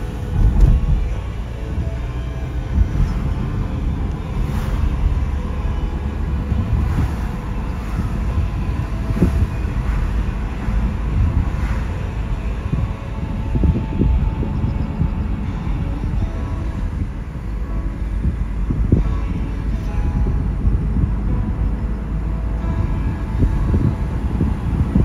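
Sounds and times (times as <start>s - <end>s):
tyre and engine rumble: 0.0s - 25.0s
faint swish: 2.6s - 15.1s.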